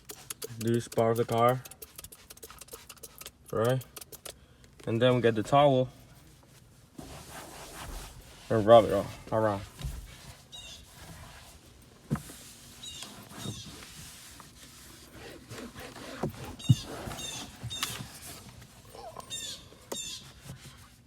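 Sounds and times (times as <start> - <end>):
towel rubbing car interior: 0.0 - 3.3, 7.0 - 21.0
small birds chirping: 10.5 - 10.9, 16.5 - 18.1, 18.9 - 20.3.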